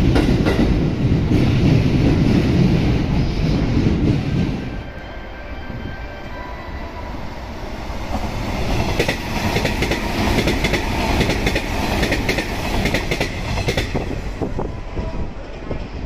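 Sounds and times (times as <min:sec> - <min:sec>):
electric train rumbling past: 0:00.0 - 0:16.0.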